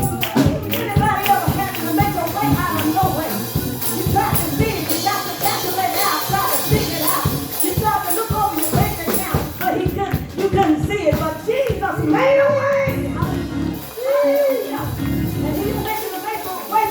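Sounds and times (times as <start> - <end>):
instruments playing: 0.0 - 9.6, 12.0 - 16.7
tambourine shaken and struck: 0.0 - 9.9
people singing: 0.0 - 16.9.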